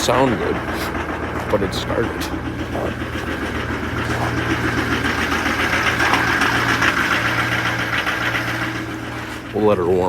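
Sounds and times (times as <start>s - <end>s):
diesel engine idling with clatter: 0.0s - 10.0s.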